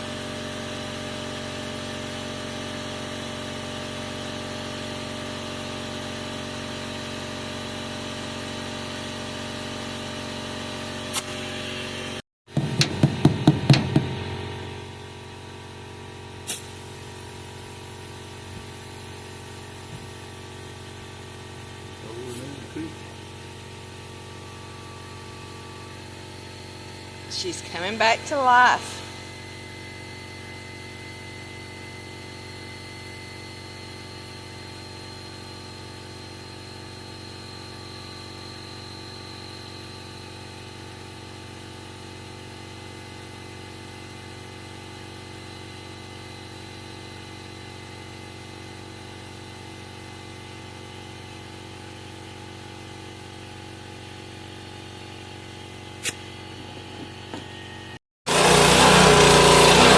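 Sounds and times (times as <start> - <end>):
low mechanical hum: 47.0 - 59.9
sharp click: 56.0 - 56.3.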